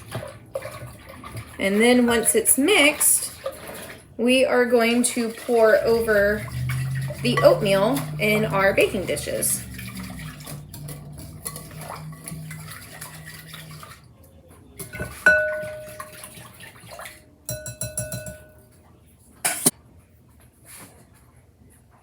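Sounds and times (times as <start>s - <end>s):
utensil stirring batter in bowl: 0.0s - 18.7s
ringing clink on bowl: 15.0s - 16.4s, 17.5s - 18.8s.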